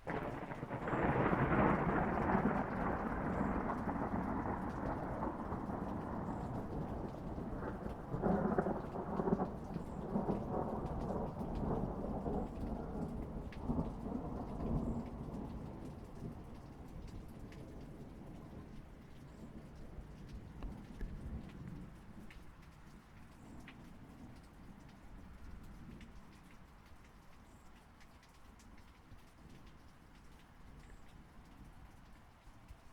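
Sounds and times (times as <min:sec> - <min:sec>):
thunder rumbling: 0:00.0 - 0:22.3
steady rain: 0:00.0 - 0:32.9.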